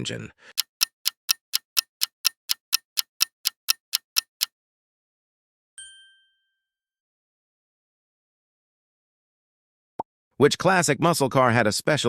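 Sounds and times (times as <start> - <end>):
clock ticking: 0.5 - 4.5
short bright ding: 5.8 - 6.6.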